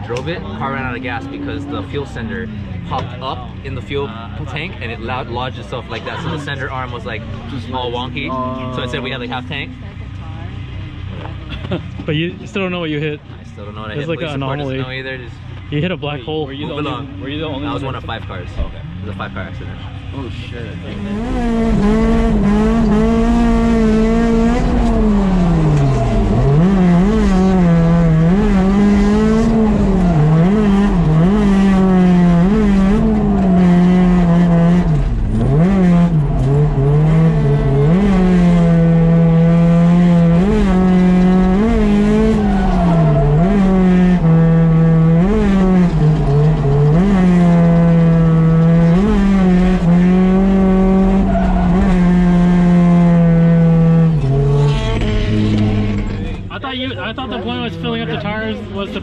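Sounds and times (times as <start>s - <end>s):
car engine revving high: 16.8s - 56.5s.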